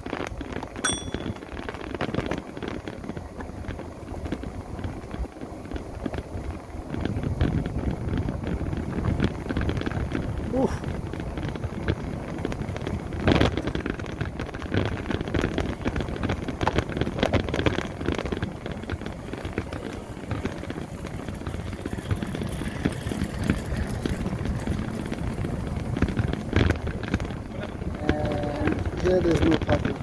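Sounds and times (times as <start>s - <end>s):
road rumble: 0.0s - 30.0s
wind buffeting microphone: 0.0s - 30.0s.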